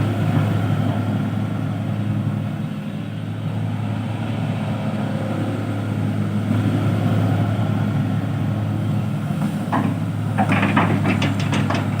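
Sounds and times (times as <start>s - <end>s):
heavy machine engine running: 8.8s - 12.0s
irregular clanks and clatters: 9.7s - 12.0s.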